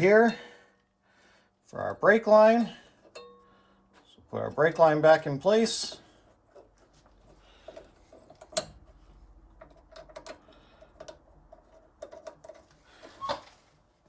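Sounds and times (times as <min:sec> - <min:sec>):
small metallic clicks: 0:07.6 - 0:13.4.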